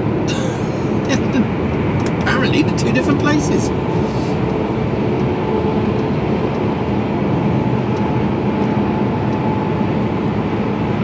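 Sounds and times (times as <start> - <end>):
lorry engine and road noise: 0.0 - 11.0.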